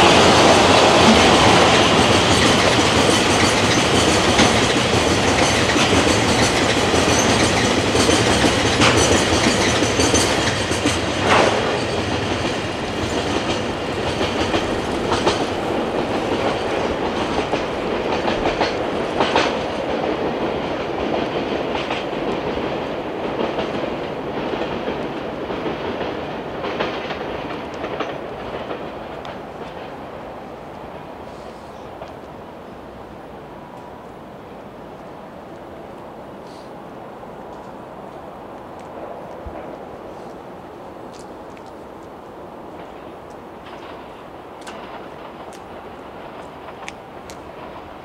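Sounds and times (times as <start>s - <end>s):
train wheels clacking over rail joints: 0.0s - 30.2s, 42.7s - 48.0s.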